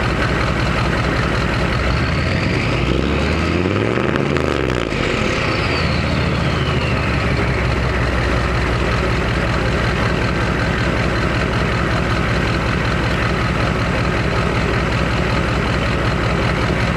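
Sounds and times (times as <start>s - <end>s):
diesel engine idling: 0.0s - 16.9s
turbo whistle winding down: 1.9s - 8.4s.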